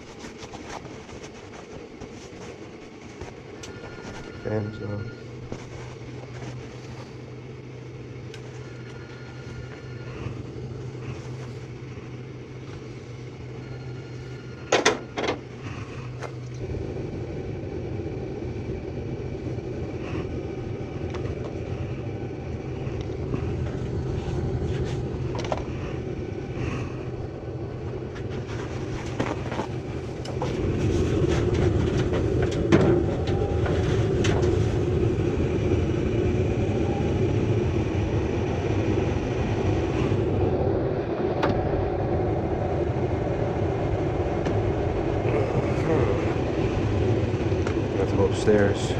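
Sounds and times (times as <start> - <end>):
furnace blower fan humming: 0.0 - 48.9.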